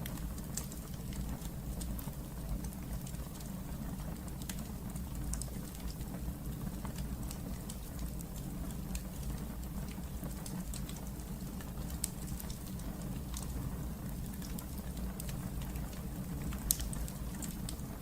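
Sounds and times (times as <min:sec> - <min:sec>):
fire crackling and popping: 0:00.0 - 0:18.0
low rumble of flames: 0:00.0 - 0:18.0.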